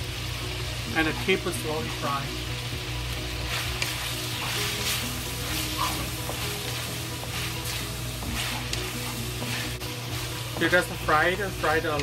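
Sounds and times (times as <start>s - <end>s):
meat sizzling in hot oil: 0.0s - 12.0s
wooden spatula scraping a wok: 3.4s - 11.8s.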